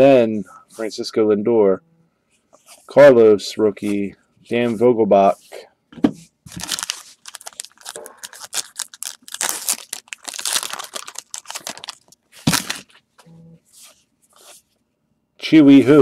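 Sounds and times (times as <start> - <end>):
plastic wrapper crinkling: 6.5 - 13.0
plastic wrapper ripping: 6.5 - 13.0.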